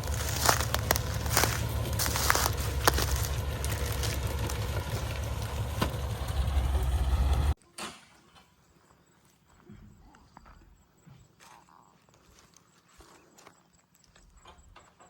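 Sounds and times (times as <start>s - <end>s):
truck engine running: 0.0s - 7.6s.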